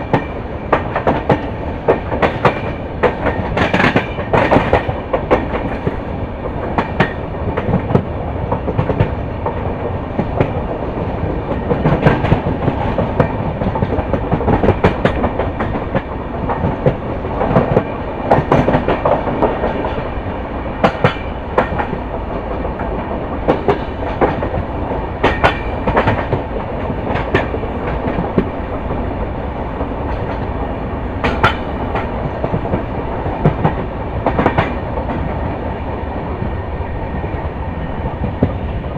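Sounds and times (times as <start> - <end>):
wheels clacking over rail joints: 0.0 - 35.6
train wheels rumbling on rails: 0.0 - 38.9.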